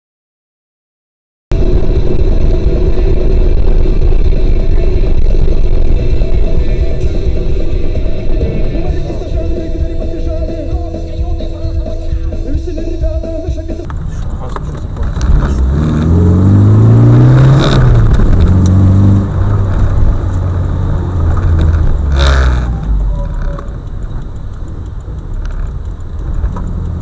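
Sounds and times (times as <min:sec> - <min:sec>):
sudden loud noises: 0:01.5 - 0:14.2, 0:15.1 - 0:23.7
vehicle engine speeding up: 0:01.5 - 0:27.0.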